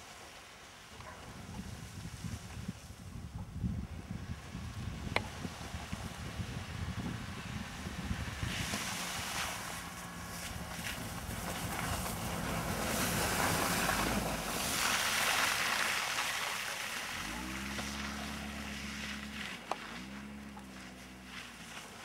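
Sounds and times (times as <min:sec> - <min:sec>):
wind on microphone: 0:01.0 - 0:09.7
car engine revving: 0:07.0 - 0:22.0.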